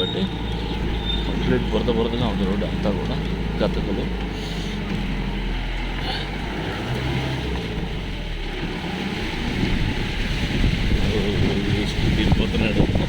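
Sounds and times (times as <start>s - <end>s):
car engine running: 0.0s - 13.0s
rumble of off-road ride: 0.0s - 13.0s.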